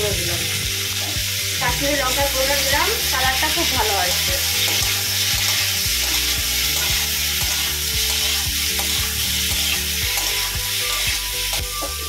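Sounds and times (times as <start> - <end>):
vegetables sizzling in hot oil: 0.0 - 12.0
metal spatula scraping a wok: 3.6 - 12.0.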